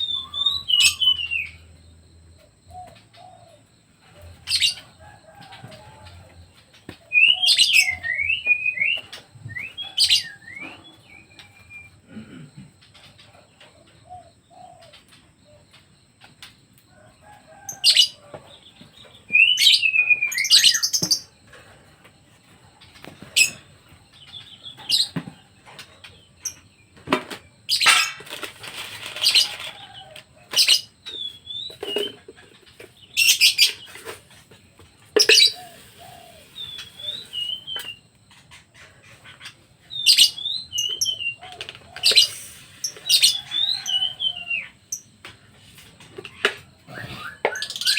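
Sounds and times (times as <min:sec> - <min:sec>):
bird chirps: 0:00.0 - 0:12.1, 0:17.6 - 0:21.6, 0:29.0 - 0:34.5, 0:35.1 - 0:45.2, 0:45.9 - 0:47.9
birds fluttering wings: 0:28.2 - 0:30.0.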